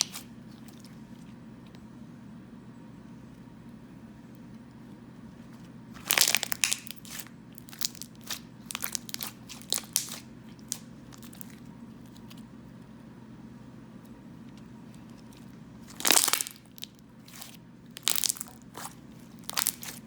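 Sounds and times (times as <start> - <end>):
slime crackling and popping: 0.0 - 0.9, 6.0 - 12.4, 15.0 - 20.0.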